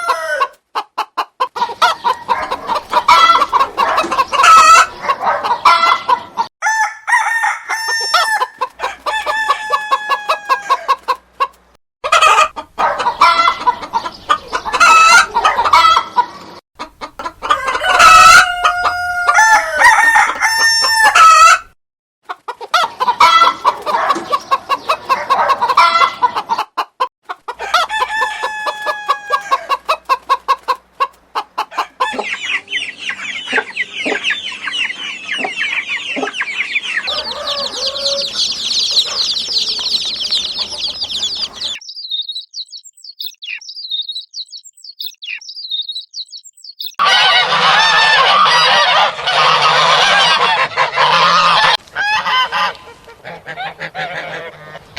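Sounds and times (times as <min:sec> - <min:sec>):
chickens clucking: 0:00.0 - 0:06.5, 0:07.7 - 0:42.4, 0:46.8 - 0:54.9
noisy flock: 0:00.0 - 0:06.5, 0:07.2 - 0:21.7, 0:22.3 - 0:26.7, 0:27.3 - 0:41.8, 0:47.0 - 0:54.9
dense high chirping: 0:36.0 - 0:47.0.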